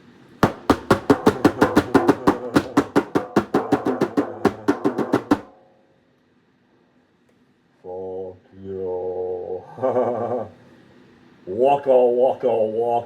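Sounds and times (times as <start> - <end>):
rapid drum hits: 0.4 - 5.5.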